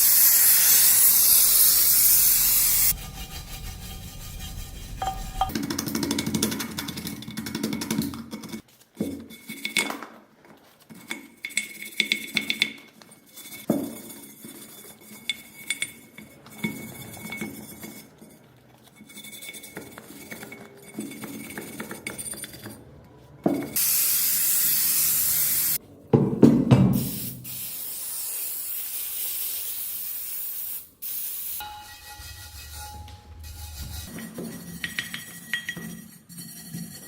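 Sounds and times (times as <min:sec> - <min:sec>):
loud spray hiss: 0:00.0 - 0:03.0, 0:23.8 - 0:25.8, 0:27.0 - 0:31.6.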